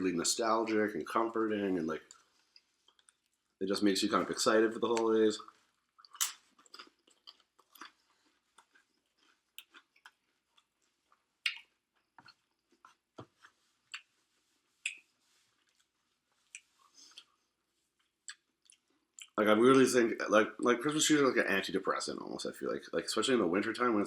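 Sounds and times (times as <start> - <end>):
person chewing food: 2.1 - 3.6, 5.4 - 19.4.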